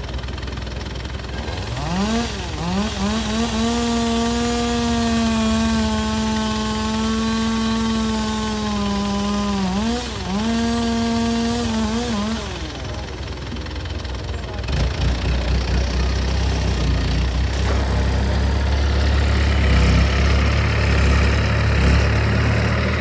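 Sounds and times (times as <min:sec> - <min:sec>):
low engine hum: 0:08.8 - 0:23.0.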